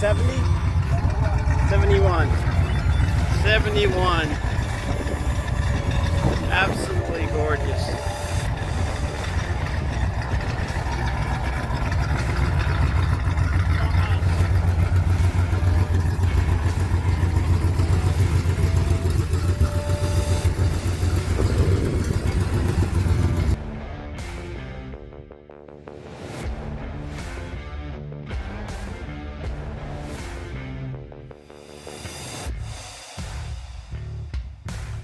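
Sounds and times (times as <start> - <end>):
car engine rumbling: 0.0 - 23.6
music: 0.0 - 35.0.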